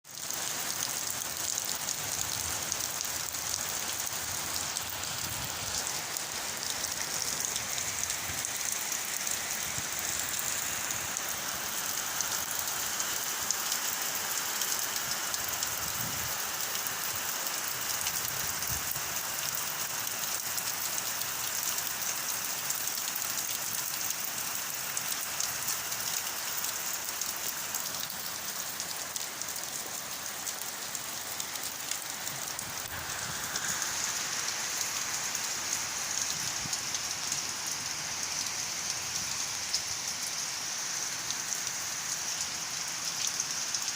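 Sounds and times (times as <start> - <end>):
heavy rain pouring: 0.0 - 43.9.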